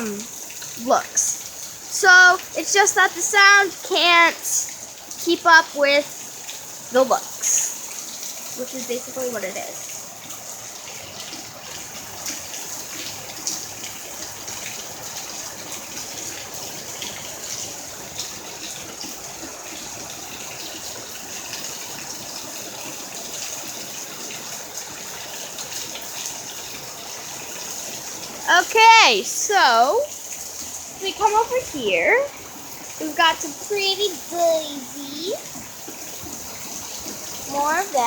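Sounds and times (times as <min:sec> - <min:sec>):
heavy rain: 0:00.0 - 0:38.0
raindrops ticking and splashing: 0:00.0 - 0:38.0.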